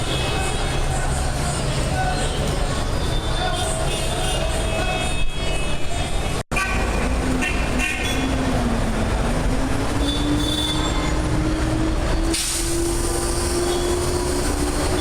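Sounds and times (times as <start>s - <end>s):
train rumbling on tracks: 7.0s - 15.0s.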